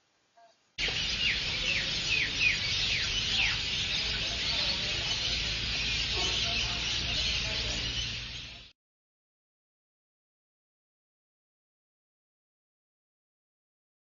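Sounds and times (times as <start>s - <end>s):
faint low hum: 0.0s - 8.7s
flock of birds chattering: 0.8s - 8.7s.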